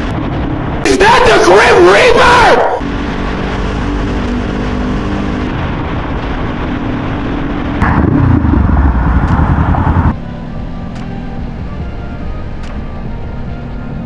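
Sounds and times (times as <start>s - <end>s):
wind noise: 2.9s - 10.2s
motorcycle engine running: 6.6s - 10.2s.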